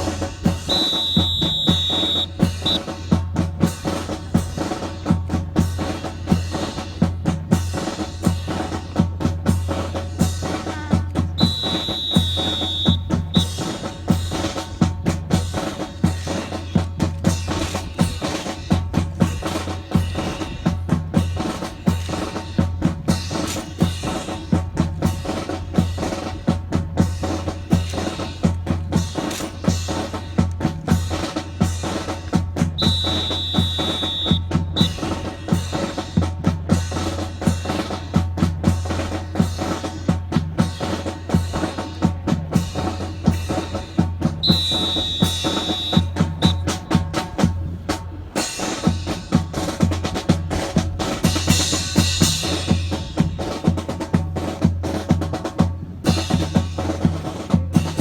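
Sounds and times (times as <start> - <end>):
snare and bass drum cadence: 0.0 - 58.0
high steady tone: 0.7 - 2.8, 11.4 - 13.4, 32.8 - 35.1, 44.4 - 46.7.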